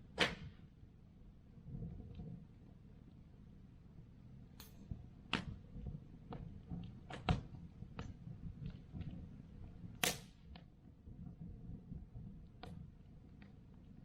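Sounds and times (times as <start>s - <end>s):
wood fire crackling: 0.1s - 14.0s.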